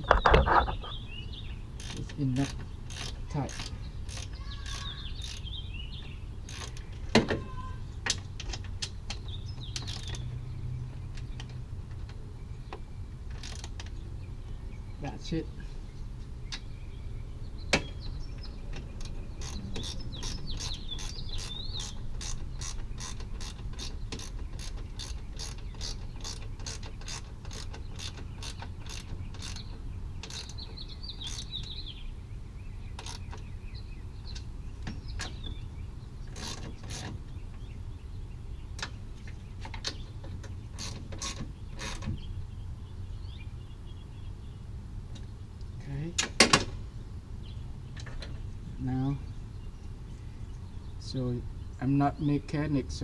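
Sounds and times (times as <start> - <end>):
ratchet wrench clicking: 1.8 - 5.5, 6.5 - 6.8, 8.1 - 10.2, 13.3 - 13.9, 19.0 - 31.8, 33.0 - 33.4, 40.8 - 42.0.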